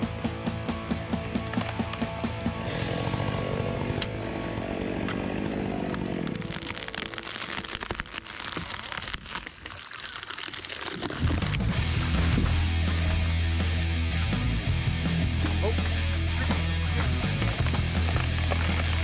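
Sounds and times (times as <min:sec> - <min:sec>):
music: 0:00.0 - 0:06.4, 0:11.2 - 0:19.0
chainsaw engine running: 0:00.0 - 0:08.6, 0:11.2 - 0:19.0
crackling rustling noise: 0:06.0 - 0:12.7.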